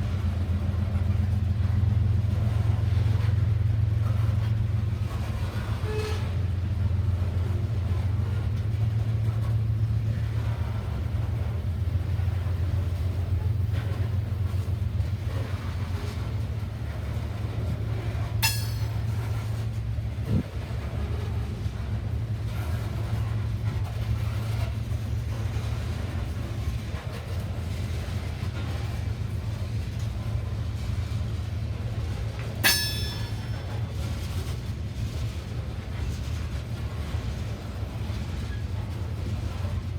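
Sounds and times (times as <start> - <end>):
train rumbling past: 0.0 - 39.9
sharp metallic clank: 18.4 - 19.3, 32.6 - 33.8.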